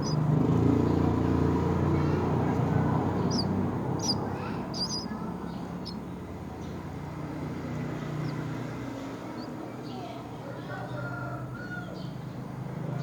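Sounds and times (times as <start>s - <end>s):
short high bird chirps: 3.3s - 5.1s.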